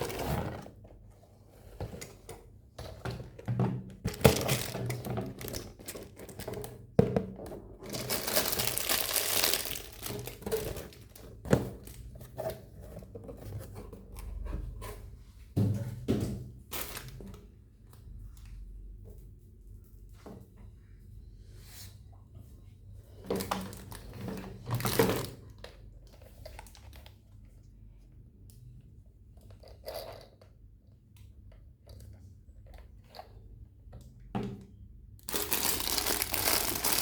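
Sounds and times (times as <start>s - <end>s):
plastic packaging crinkling and tearing: 4.1s - 6.6s, 7.8s - 12.0s, 35.2s - 37.0s
packaging rustling: 4.1s - 6.8s, 7.8s - 12.0s, 35.2s - 37.0s.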